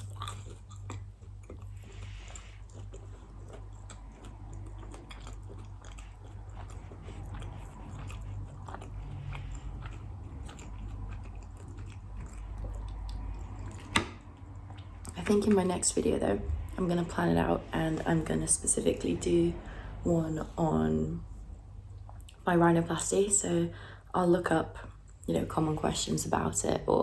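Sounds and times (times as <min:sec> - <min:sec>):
person chewing and biting food: 0:00.0 - 0:15.4
mouth clicks and crunches: 0:00.0 - 0:15.8.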